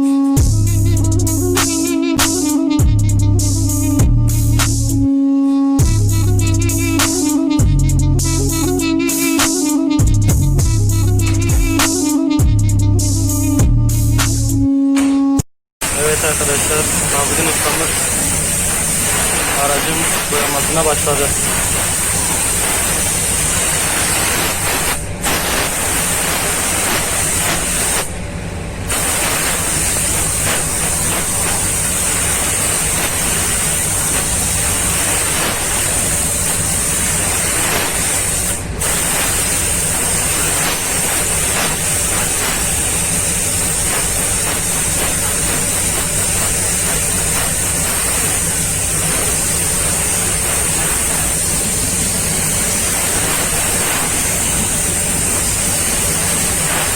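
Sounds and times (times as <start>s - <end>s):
paint spray gun hissing: 0.8s - 2.6s, 6.1s - 7.5s, 15.8s - 28.2s, 28.9s - 56.9s.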